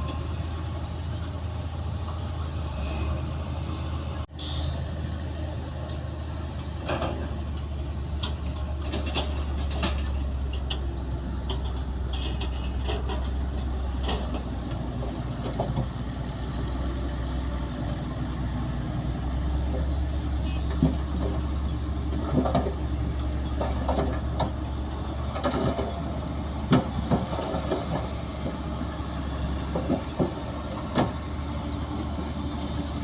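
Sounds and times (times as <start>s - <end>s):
diesel machinery droning: 0.0s - 33.0s
metallic clanks and squeaks: 5.8s - 17.0s, 19.5s - 31.2s.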